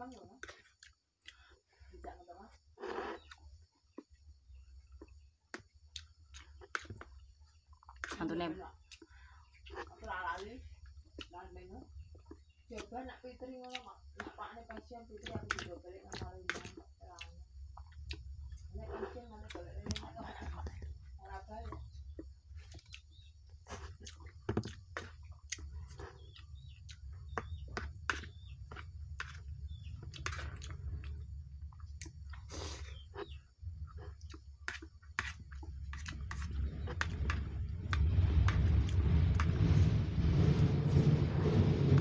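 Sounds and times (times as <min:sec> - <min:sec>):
chewing: 0:00.4 - 0:01.8, 0:02.7 - 0:08.2, 0:08.8 - 0:39.0
loud rumbling noise: 0:36.4 - 0:42.0.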